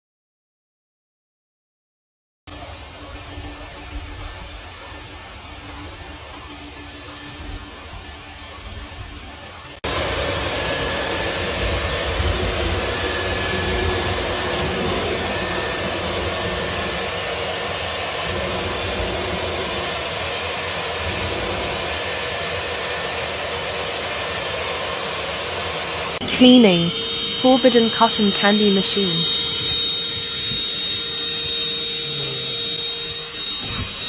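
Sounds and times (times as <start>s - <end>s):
vacuum cleaner running: 2.5s - 34.0s.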